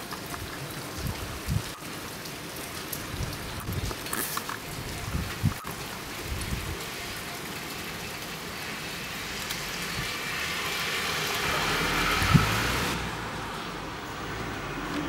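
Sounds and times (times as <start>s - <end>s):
wet snow falling and dripping: 0.0s - 15.0s
car tyres on slushy road: 7.7s - 15.0s.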